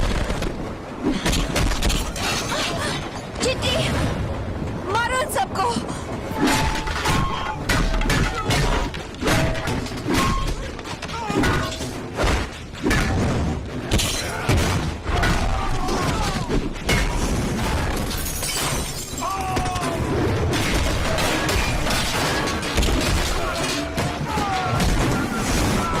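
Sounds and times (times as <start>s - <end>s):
crashes and impacts with shattering: 6.4s - 26.0s
wordless shouts: 23.0s - 26.0s.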